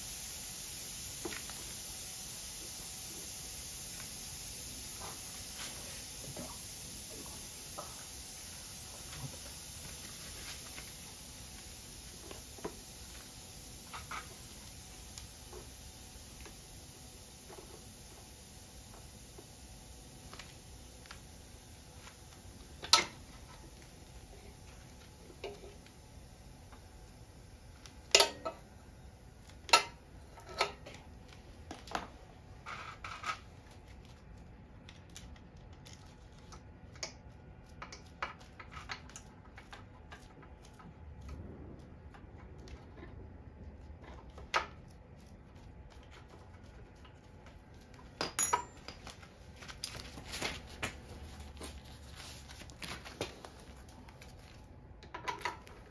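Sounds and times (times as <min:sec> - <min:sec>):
metallic clinks of hand tools: 0:48.2 - 0:49.0
sharp metal clanks: 0:48.2 - 0:49.0.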